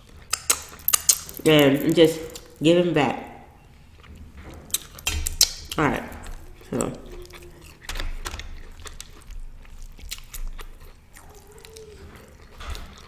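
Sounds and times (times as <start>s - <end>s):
biting and chewing: 0.0s - 2.7s, 3.4s - 13.0s
wet mouth clicks: 0.3s - 1.5s, 4.7s - 12.4s.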